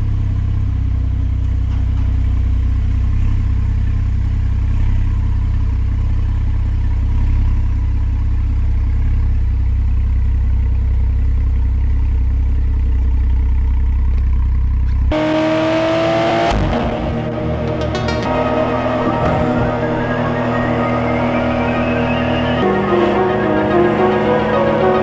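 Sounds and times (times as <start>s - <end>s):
car engine running steadily: 0.0s - 25.0s
music with rising tones: 15.2s - 25.0s.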